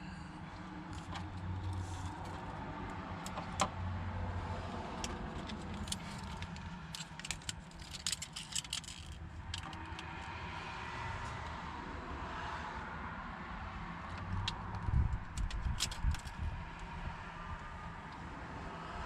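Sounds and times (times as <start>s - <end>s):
small hard objects clicking and rattling: 5.0s - 10.3s, 14.8s - 16.4s.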